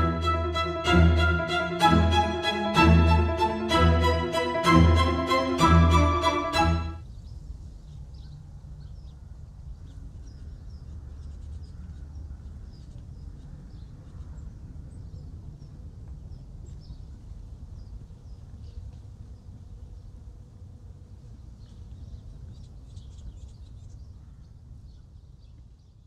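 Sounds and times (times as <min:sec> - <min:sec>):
small birds chirping: 0:07.1 - 0:20.2, 0:21.5 - 0:26.0.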